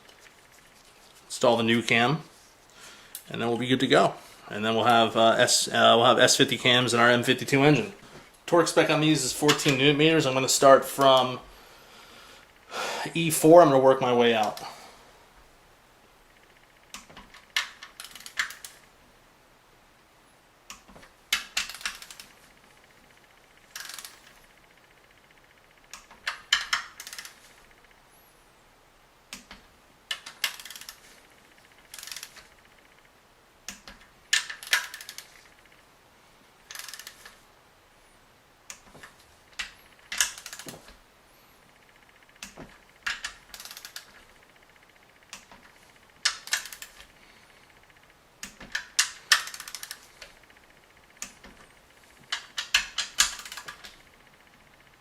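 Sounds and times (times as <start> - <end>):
torque wrench ratchet clicks: 23.7 - 24.3, 31.8 - 32.4, 36.7 - 37.2, 48.4 - 50.3, 52.3 - 54.0.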